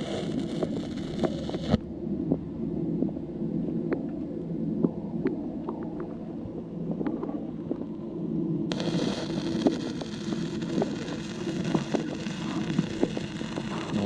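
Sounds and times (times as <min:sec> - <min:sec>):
small clicks: 0:00.0 - 0:01.8
welding arc crackling: 0:00.0 - 0:01.8, 0:08.7 - 0:14.0
low rumble: 0:00.0 - 0:14.0.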